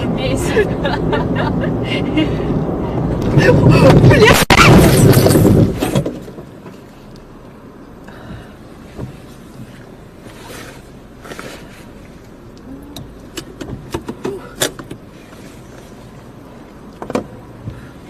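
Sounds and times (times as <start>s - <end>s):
engine and road hum: 0.0s - 18.0s.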